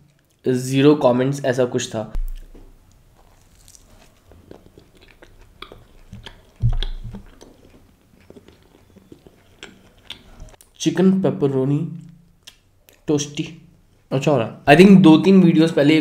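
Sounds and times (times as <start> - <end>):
person chewing crunchy food: 2.2 - 10.7.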